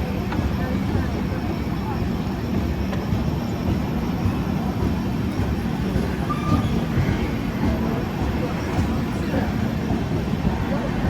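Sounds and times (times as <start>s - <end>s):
train wheels rumbling on rails: 0.0s - 11.0s
brief high tone: 6.2s - 7.1s.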